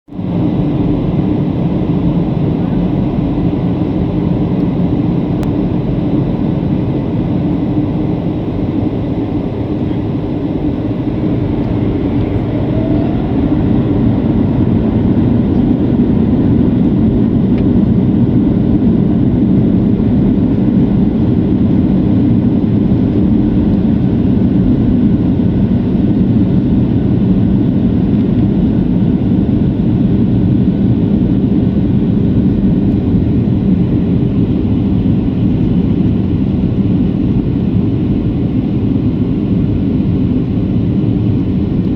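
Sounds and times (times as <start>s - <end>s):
jet engine drone: 0.1s - 41.9s
rushing air: 10.1s - 17.4s.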